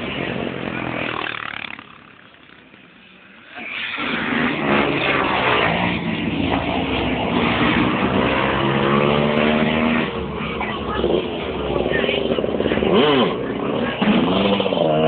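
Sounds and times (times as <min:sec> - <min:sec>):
motorcycle engines racing: 0:00.0 - 0:15.0
high-revving engine: 0:03.6 - 0:15.0.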